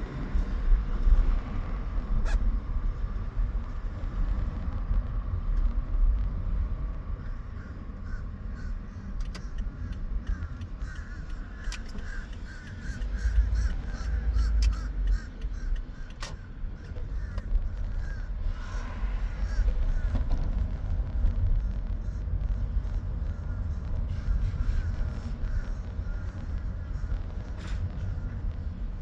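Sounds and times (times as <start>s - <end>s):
wind buffeting microphone: 0.0s - 29.0s
birds calling: 7.4s - 20.1s.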